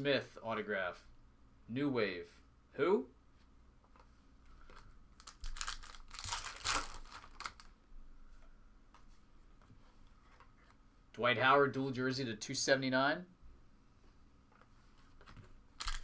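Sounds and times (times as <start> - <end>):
plastic wrapper crinkling and tearing: 5.2 - 7.7.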